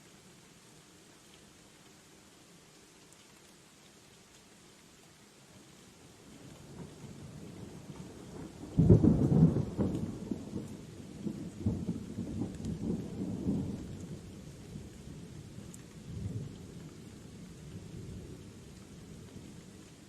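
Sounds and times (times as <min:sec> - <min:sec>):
steady rain: 0:00.0 - 0:20.0
thunder rumbling: 0:08.3 - 0:14.0.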